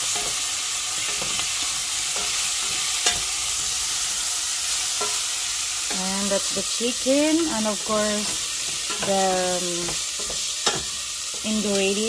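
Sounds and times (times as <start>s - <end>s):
food sizzling in a pan: 0.0s - 12.0s
utensil knocking pan: 7.3s - 12.0s.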